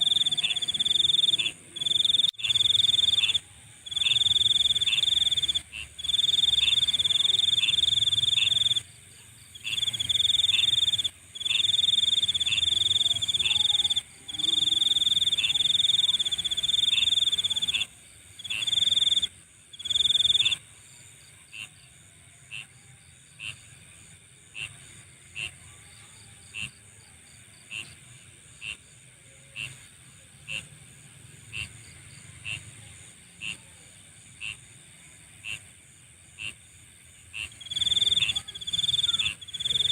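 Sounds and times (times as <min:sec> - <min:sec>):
high-pitched insect trill: 0:00.0 - 0:08.9, 0:09.5 - 0:20.6, 0:37.4 - 0:39.9
faint high-pitched insect hum: 0:00.0 - 0:39.9
insect chirps: 0:00.0 - 0:39.9.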